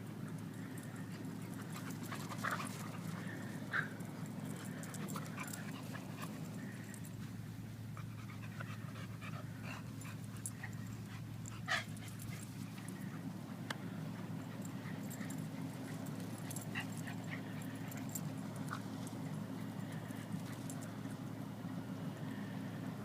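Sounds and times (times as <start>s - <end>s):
dog panting: 1.0s - 7.1s, 7.9s - 13.3s.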